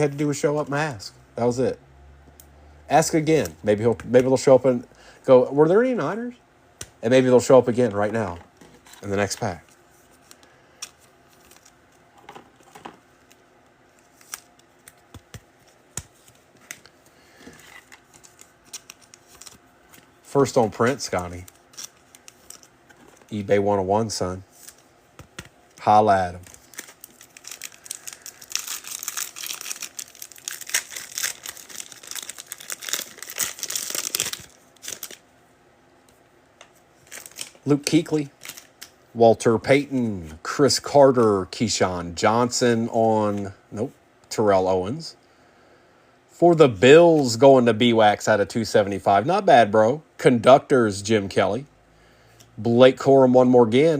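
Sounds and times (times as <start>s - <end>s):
foil wrapper crinkling: 25.8s - 35.2s, 37.0s - 38.8s.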